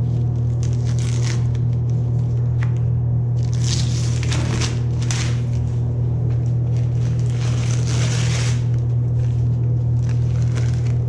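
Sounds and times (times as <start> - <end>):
low machine hum: 0.0 - 11.0
masking tape peeling off: 0.6 - 1.7, 3.4 - 5.7, 6.7 - 8.8.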